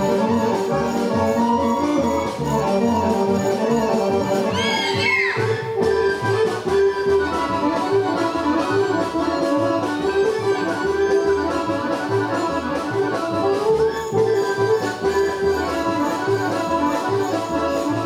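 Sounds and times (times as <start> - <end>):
folk orchestra playing dance tune: 0.0 - 18.0.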